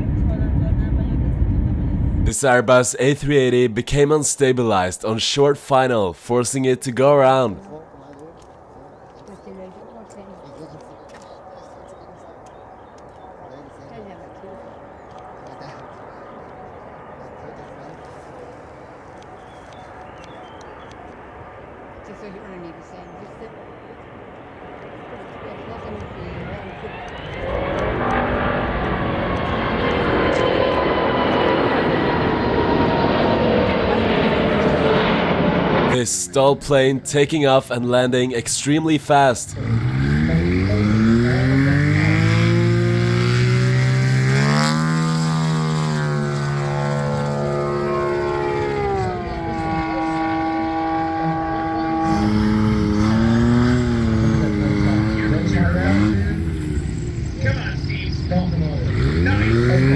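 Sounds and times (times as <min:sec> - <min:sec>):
jet engines roaring with whine: 0:23.9 - 0:35.9
propeller plane engine running: 0:39.5 - 0:58.3.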